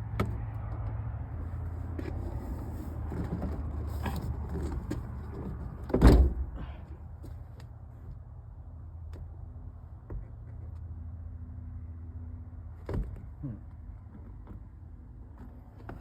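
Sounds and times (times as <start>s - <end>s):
loud clunk in truck door: 5.9s - 6.6s.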